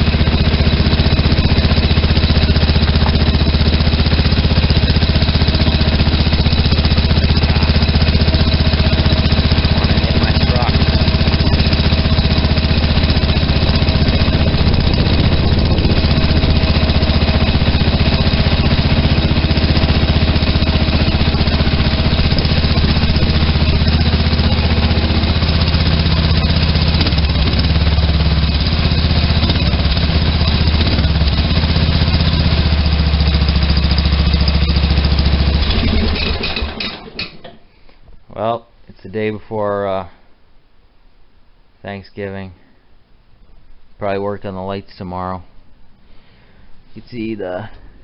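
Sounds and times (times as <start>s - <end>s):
lawn tractor engine chugging: 0.0s - 37.6s.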